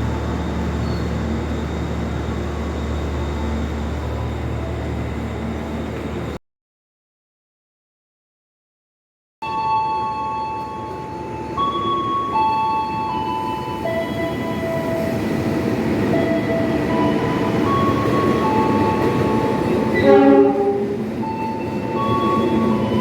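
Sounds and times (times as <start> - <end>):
train wheels rumbling on rails: 0.0 - 6.4, 10.6 - 23.0
train horn blast: 19.9 - 21.0.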